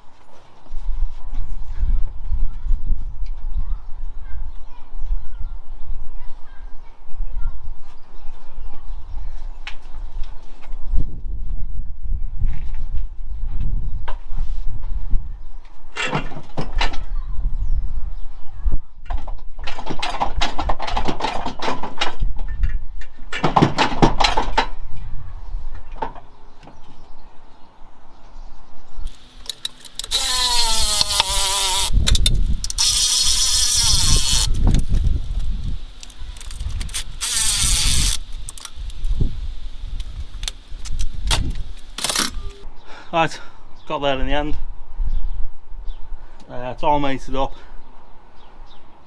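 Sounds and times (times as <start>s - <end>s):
tool whirring with loud hiss: 29.1s - 42.6s.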